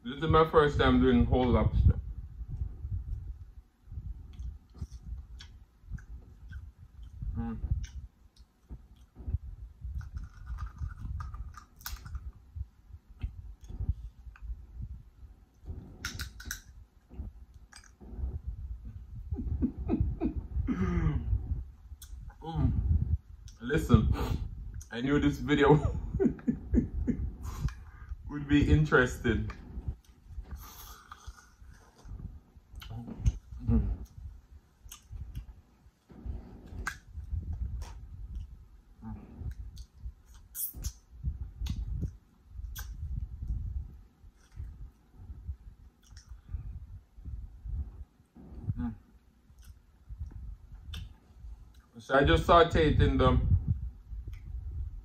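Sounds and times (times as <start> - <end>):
wet mouth clicks: 4.3 - 12.4, 15.6 - 18.4, 21.9 - 22.4, 29.5 - 35.5, 36.1 - 43.7, 45.9 - 46.6, 48.4 - 51.9.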